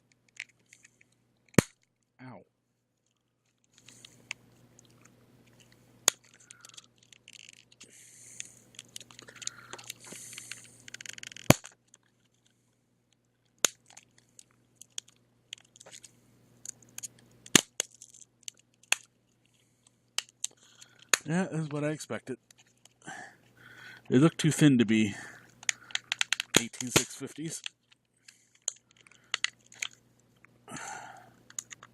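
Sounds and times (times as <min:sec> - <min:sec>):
plastic scraping and crunching: 0:08.7 - 0:12.6
plastic case snapping: 0:08.9 - 0:11.8, 0:25.6 - 0:27.1.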